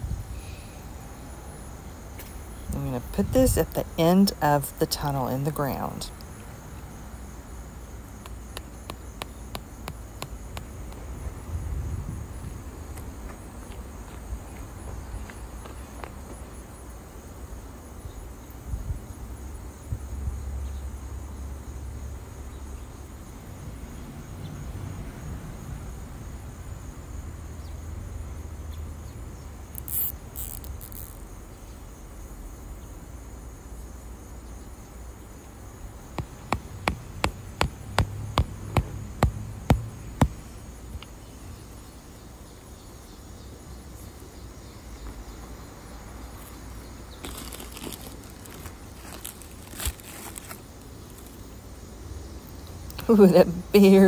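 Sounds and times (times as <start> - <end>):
insect chirring: 0.4 - 19.9, 29.3 - 53.8
mallet knocking staples: 36.2 - 40.4
handling and rustling: 46.4 - 51.4.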